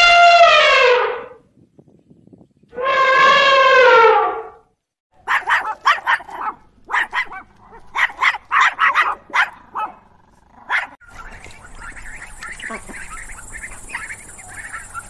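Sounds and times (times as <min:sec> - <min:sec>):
elephant trumpeting: 0:02.8 - 0:04.6
dog barking: 0:05.2 - 0:11.0.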